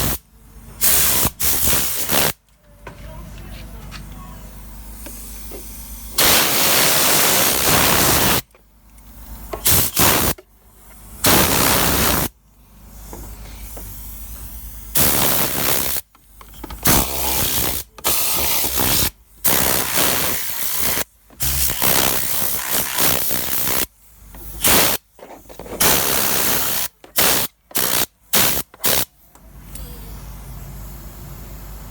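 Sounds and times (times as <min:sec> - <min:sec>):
air gun blasting air: 0:00.0 - 0:00.2, 0:00.8 - 0:02.4, 0:04.9 - 0:08.5, 0:09.5 - 0:10.4, 0:11.2 - 0:16.2, 0:16.8 - 0:25.2, 0:25.8 - 0:30.6.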